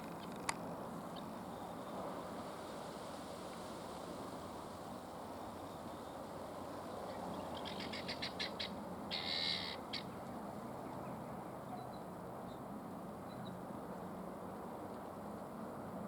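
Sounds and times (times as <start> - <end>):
guinea fowl calling: 7.4 - 10.2.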